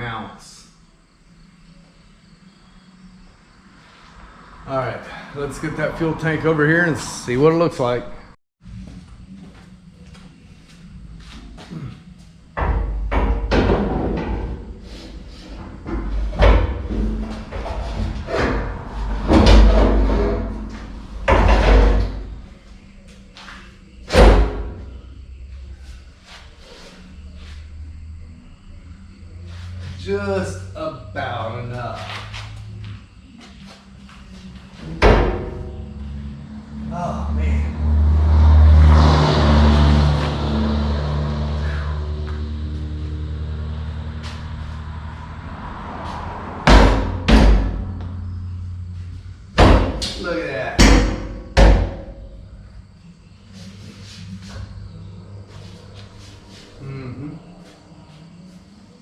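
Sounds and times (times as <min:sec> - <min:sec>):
metal clunks and bangs: 0:12.6 - 0:22.6, 0:24.1 - 0:25.0, 0:34.8 - 0:36.4, 0:46.6 - 0:48.3, 0:49.5 - 0:52.4
heavy bangs: 0:45.4 - 0:52.5.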